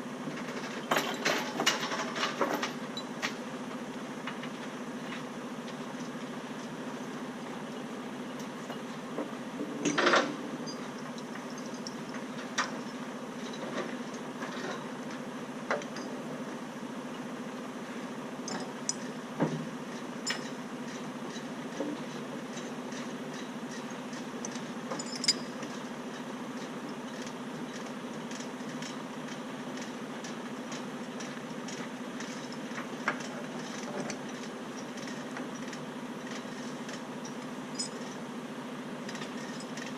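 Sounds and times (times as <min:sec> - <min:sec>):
metal clanks and rattles: 0:00.4 - 0:03.4, 0:08.7 - 0:16.2, 0:18.5 - 0:38.2.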